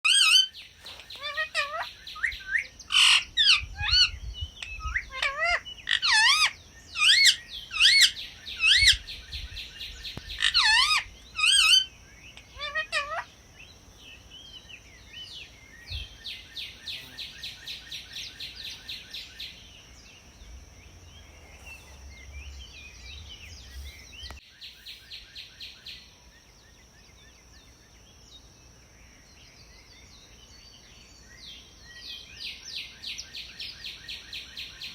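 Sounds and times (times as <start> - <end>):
parrot calling: 0.0 - 9.2, 10.2 - 13.3.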